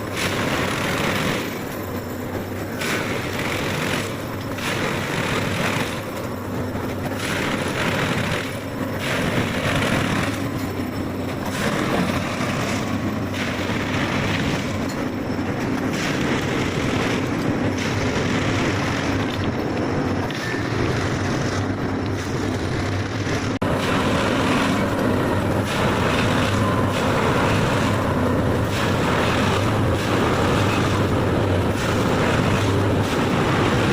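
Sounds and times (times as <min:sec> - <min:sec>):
track machine engine and machinery: 0:00.0 - 0:33.9.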